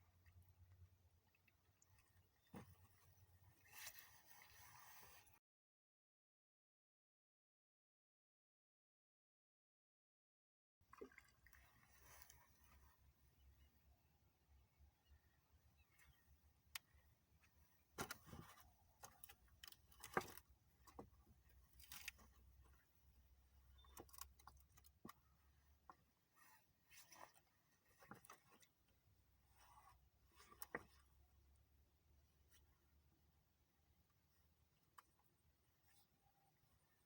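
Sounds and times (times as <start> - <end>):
faint clicks and rustles: 15.8 - 31.3.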